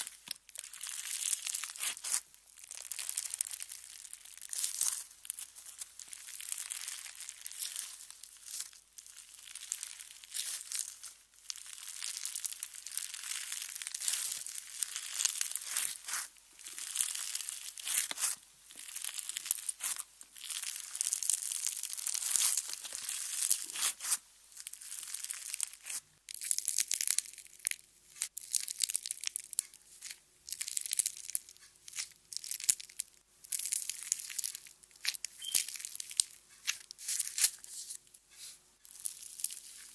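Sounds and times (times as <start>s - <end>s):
slime crackling and clicking: 9.2s - 37.6s.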